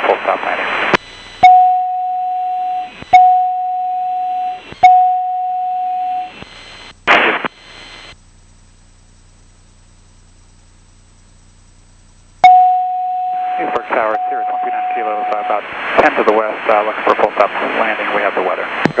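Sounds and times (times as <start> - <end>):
burst of radio noise: 0.0 - 1.4, 6.3 - 8.2, 13.5 - 19.0
long electronic beeps: 1.0 - 6.9, 12.4 - 15.7.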